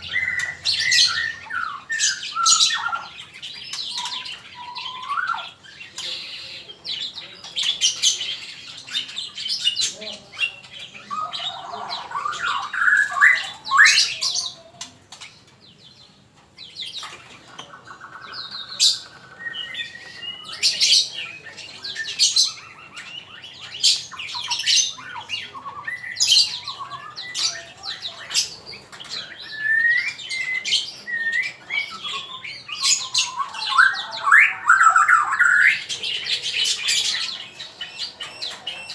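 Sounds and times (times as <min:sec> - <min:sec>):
bird singing varied song: 0:00.0 - 0:38.9.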